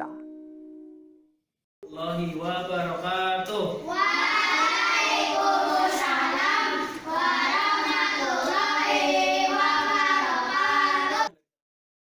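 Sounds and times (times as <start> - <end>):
children singing together: 3.9 - 11.3.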